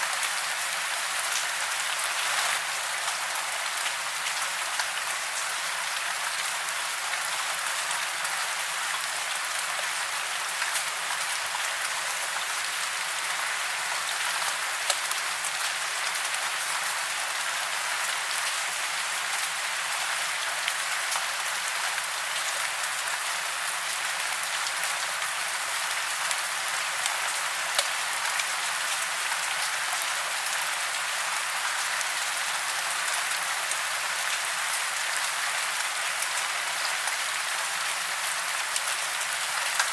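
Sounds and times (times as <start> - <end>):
steady rain hiss: 0.0 - 39.9
close raindrop ticks: 14.9 - 15.2, 27.8 - 28.0.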